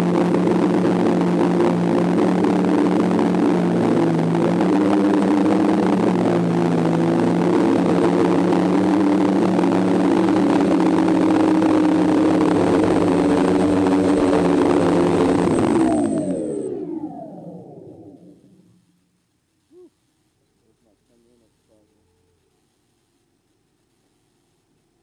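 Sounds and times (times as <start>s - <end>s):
drone motors humming: 0.0s - 18.9s.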